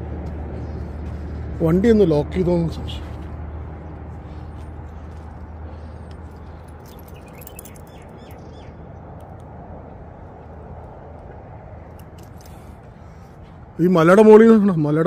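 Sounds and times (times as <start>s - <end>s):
outdoor background rush: 0.0s - 15.0s
bird chirping: 6.4s - 8.9s.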